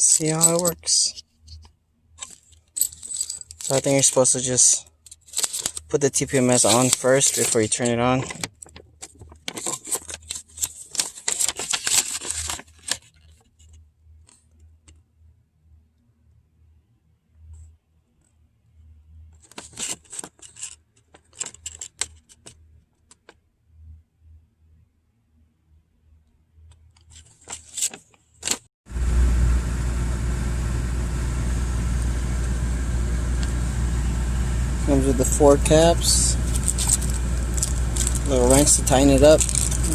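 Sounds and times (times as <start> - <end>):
packaging rattling and rustling: 5.1 - 5.9, 6.5 - 13.5, 19.4 - 22.6, 35.2 - 39.9
low rumble with hiss: 28.9 - 39.9
rustles: 35.0 - 39.9.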